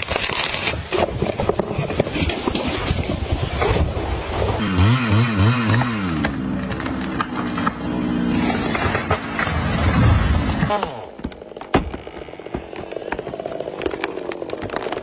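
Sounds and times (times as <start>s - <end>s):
engine revving: 4.6s - 11.0s.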